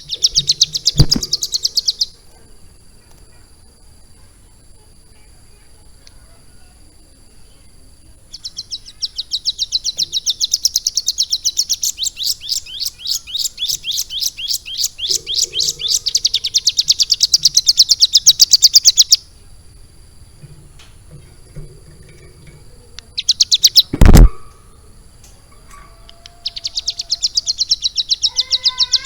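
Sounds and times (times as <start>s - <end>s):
songbird fast trill: 0.0s - 2.3s, 6.0s - 19.4s, 22.1s - 29.0s.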